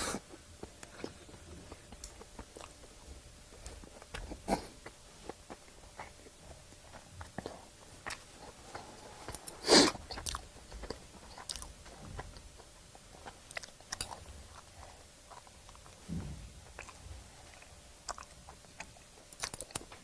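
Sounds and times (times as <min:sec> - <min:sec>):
chewing food: 0:00.0 - 0:20.0
mouth clicks and smacks: 0:16.8 - 0:20.0.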